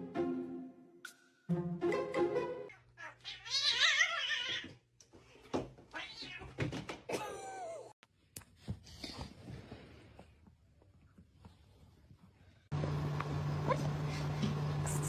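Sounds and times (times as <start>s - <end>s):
cat meowing: 2.7s - 4.7s
cat yowling: 2.7s - 4.7s.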